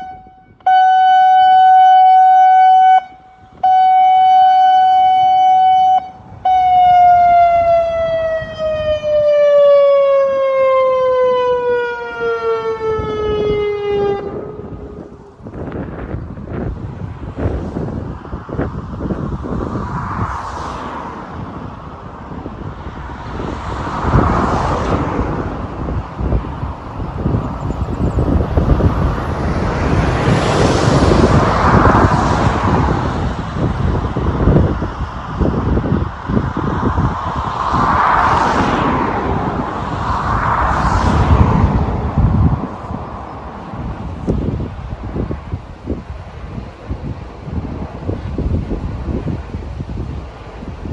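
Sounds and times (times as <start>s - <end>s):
warning siren: 0.0s - 16.1s
road traffic noise: 0.0s - 50.9s
wind on microphone: 3.3s - 50.9s
vehicle passing: 4.9s - 50.1s.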